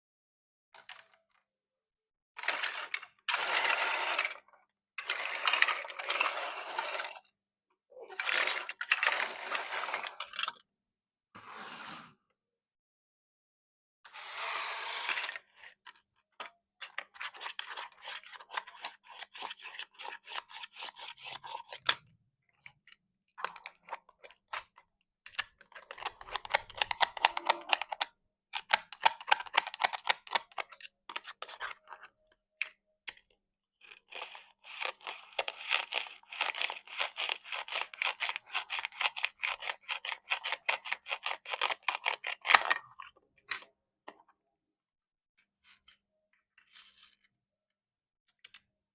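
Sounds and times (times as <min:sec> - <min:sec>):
plastic toy crackly clicks: 0:25.4 - 0:31.3.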